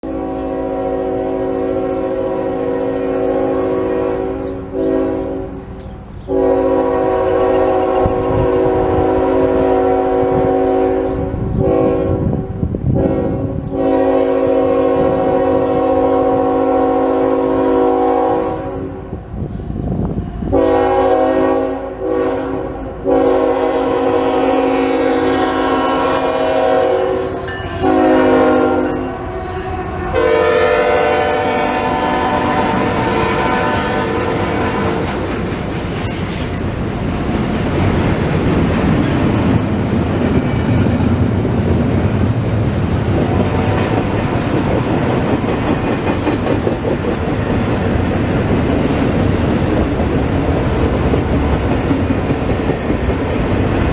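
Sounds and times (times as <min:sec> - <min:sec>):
locomotive air horn blasts: 0:00.0 - 0:05.6, 0:06.3 - 0:19.0, 0:20.5 - 0:35.2
train rumbling past: 0:00.0 - 0:53.9.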